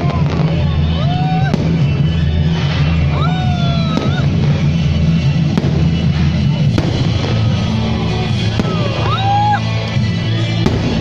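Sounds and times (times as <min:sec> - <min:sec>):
fireworks bangs: 0:00.0 - 0:11.0
loud music over loudspeakers: 0:00.0 - 0:11.0.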